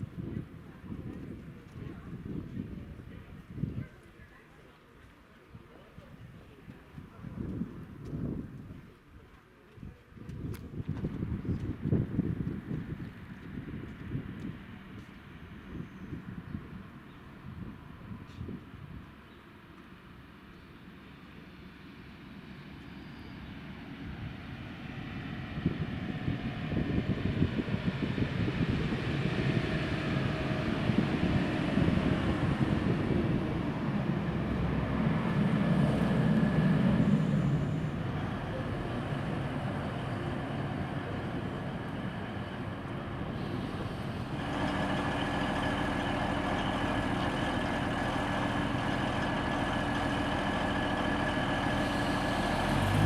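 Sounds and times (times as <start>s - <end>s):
diesel train passing: 11.0s - 53.0s
diesel engine idling: 25.0s - 53.0s.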